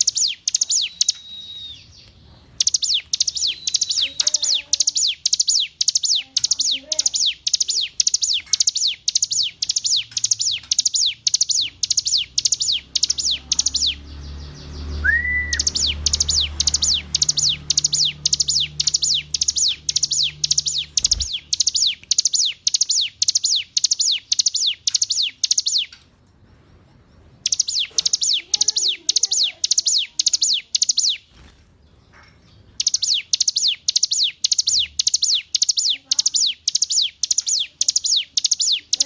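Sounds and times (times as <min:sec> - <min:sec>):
bird singing sharp falling notes: 0:14.8 - 0:25.9.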